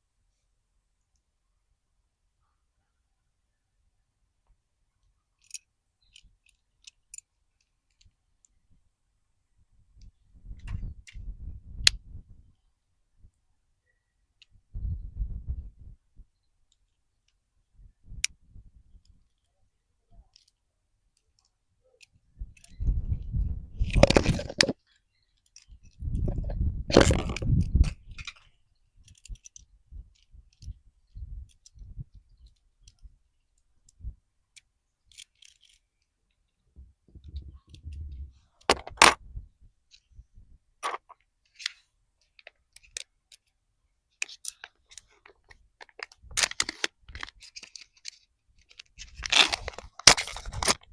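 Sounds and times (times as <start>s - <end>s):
packaging rustling and crinkling: 44.9s - 50.9s.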